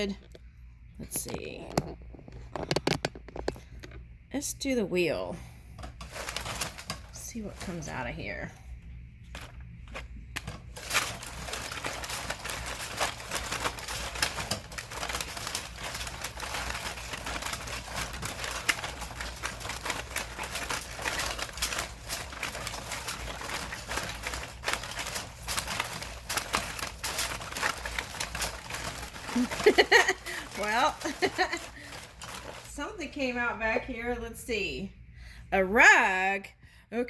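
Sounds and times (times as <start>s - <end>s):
cards being shuffled: 9.3s - 32.7s.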